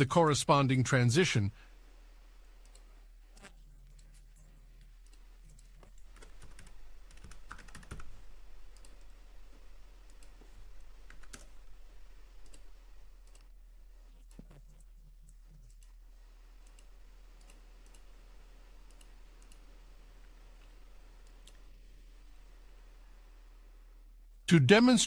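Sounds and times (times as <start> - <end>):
keyboard typing: 3.9 - 9.2, 10.0 - 13.5.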